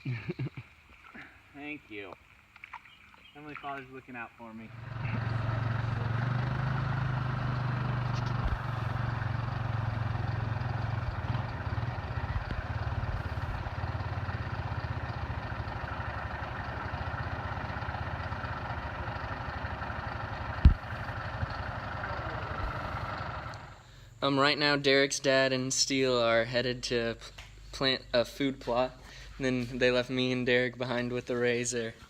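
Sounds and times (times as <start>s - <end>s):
utility vehicle engine running: 4.7s - 23.9s.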